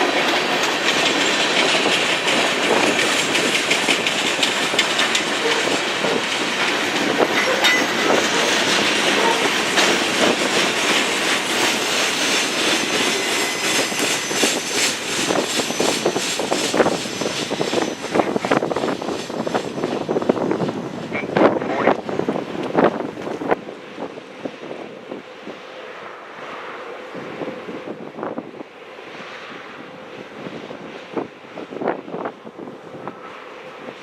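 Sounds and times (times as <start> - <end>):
freight train wheels clattering: 0.0 - 23.8.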